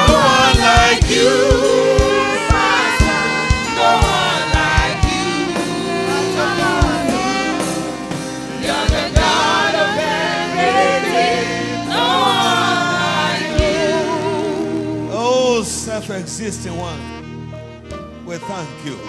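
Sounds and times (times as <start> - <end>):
voices singing: 0.0 - 15.6
keyboard chords: 0.0 - 19.0.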